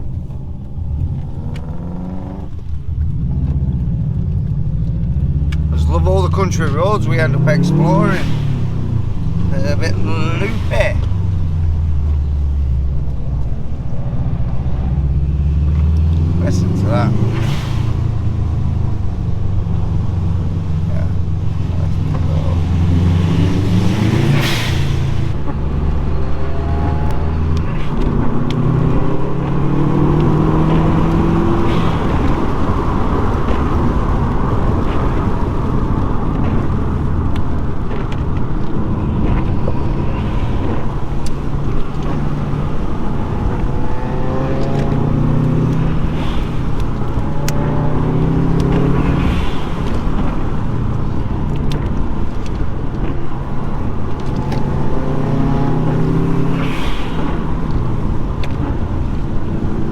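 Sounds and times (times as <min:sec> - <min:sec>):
car engine accelerating hard: 0:00.0 - 0:59.9
tyre and road noise: 0:00.0 - 0:59.9.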